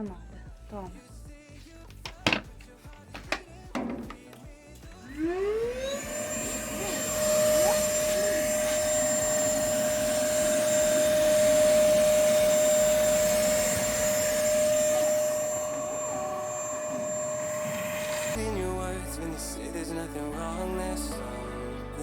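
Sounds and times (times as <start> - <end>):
vacuum cleaner running: 5.1 - 18.4.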